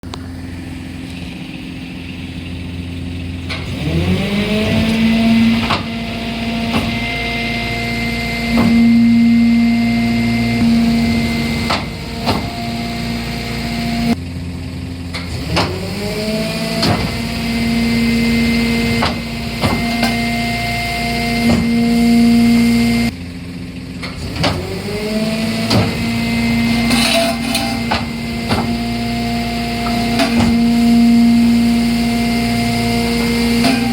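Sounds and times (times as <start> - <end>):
garbage truck engine revving: 0.0 - 33.9
metal knocking and crunching: 3.4 - 9.4, 10.6 - 13.8, 16.7 - 17.8, 18.5 - 20.4, 21.2 - 22.7, 24.0 - 31.8, 32.8 - 33.9.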